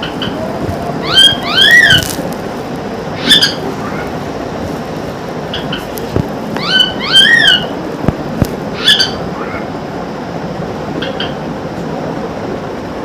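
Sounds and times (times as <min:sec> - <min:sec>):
parrot whistling calls: 0:01.0 - 0:02.1, 0:03.2 - 0:03.7, 0:06.6 - 0:07.8, 0:08.8 - 0:09.2.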